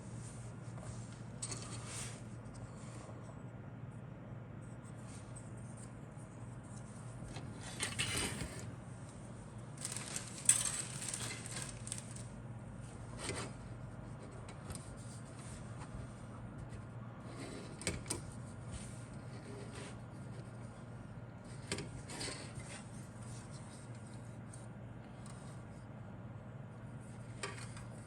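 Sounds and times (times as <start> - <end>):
faint steady hum: 0.0 - 28.0
handling rustling: 9.7 - 12.3.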